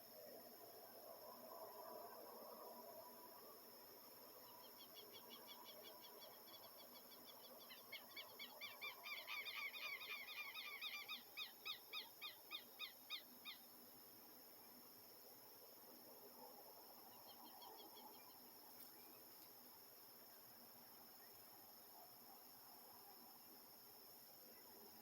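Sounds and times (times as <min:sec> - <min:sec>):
high insect hum: 0:00.0 - 0:25.0.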